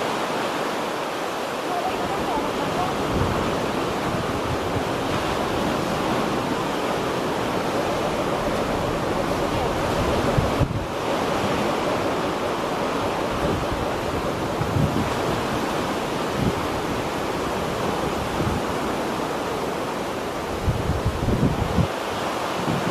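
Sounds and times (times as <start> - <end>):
sea waves washing: 0.0 - 22.9
wind: 0.0 - 22.9
wind buffeting microphone: 1.8 - 22.9.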